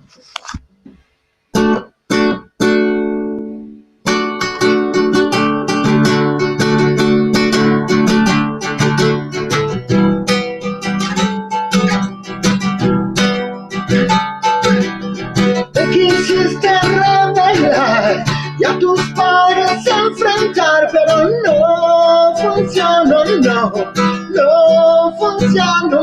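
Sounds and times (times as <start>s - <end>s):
acoustic guitar strumming: 1.5s - 26.0s.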